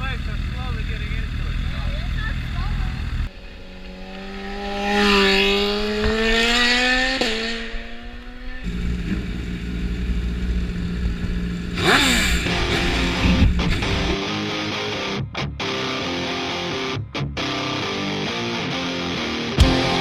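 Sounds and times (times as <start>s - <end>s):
motorcycle engine revving: 0.0s - 14.2s.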